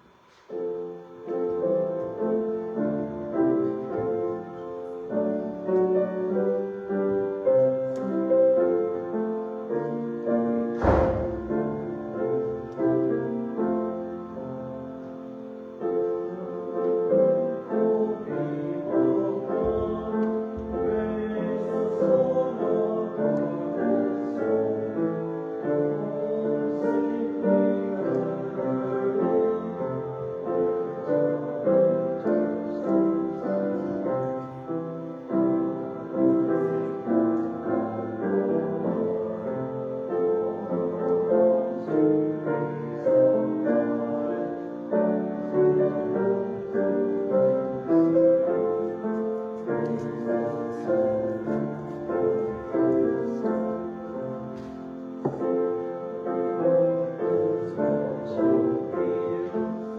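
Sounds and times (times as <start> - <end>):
slow piano piece: 0.0 - 59.9.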